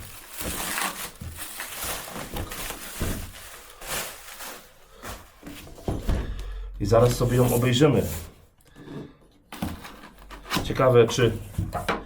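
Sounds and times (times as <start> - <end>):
cardboard box rustling and scraping: 0.0 - 6.1.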